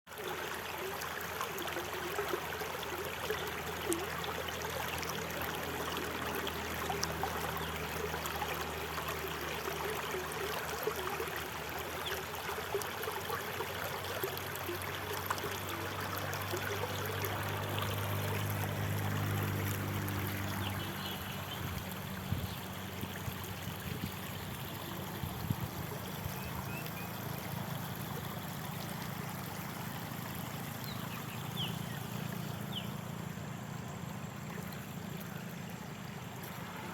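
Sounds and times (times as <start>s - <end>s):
stream water rushing and trickling: 0.1s - 36.9s
low steady hum: 14.6s - 36.9s.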